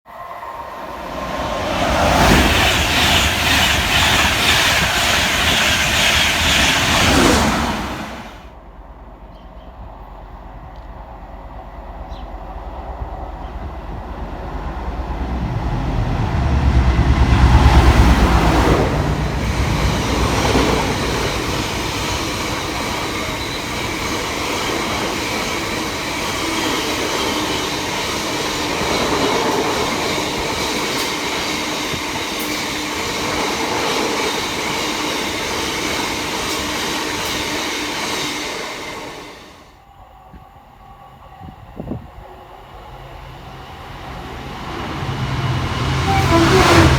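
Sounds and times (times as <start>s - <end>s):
train passing: 0.1s - 46.9s
wheels clattering on rails: 1.2s - 8.4s.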